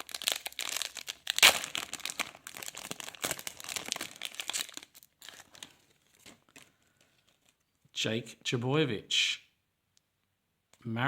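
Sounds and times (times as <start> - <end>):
wrapper being torn and crinkled: 0.0 - 7.6.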